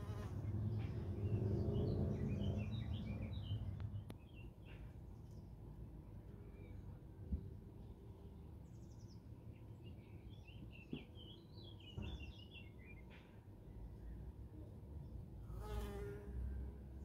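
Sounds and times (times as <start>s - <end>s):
songbird chirping: 0.7s - 5.5s.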